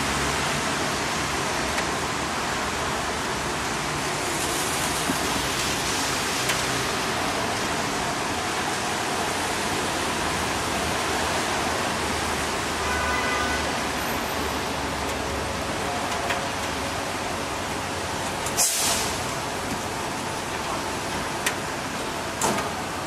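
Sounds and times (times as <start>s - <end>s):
rain on a street: 0.0s - 23.0s
traffic going by: 0.0s - 23.0s
short sharp hiss: 18.6s - 19.2s.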